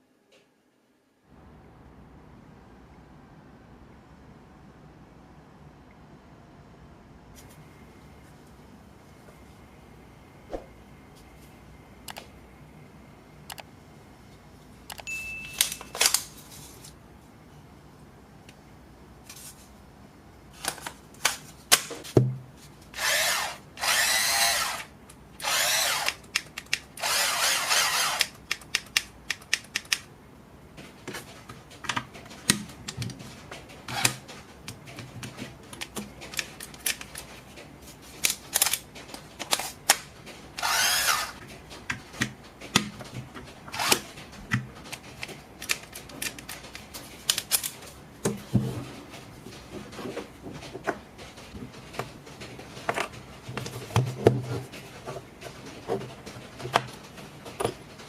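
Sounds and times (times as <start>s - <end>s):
cordless drill bursts: 23.0s - 26.2s, 27.0s - 28.3s, 40.6s - 41.4s.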